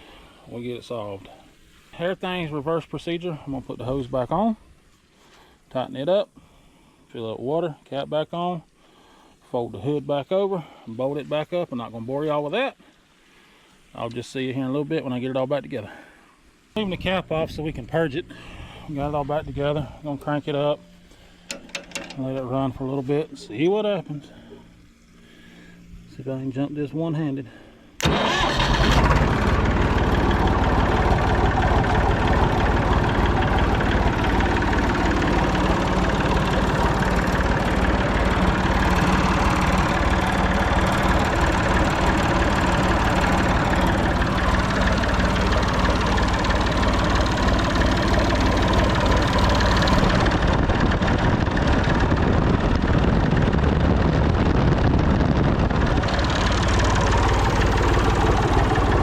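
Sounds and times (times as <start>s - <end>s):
tractor diesel engine idling: 28.0s - 59.0s.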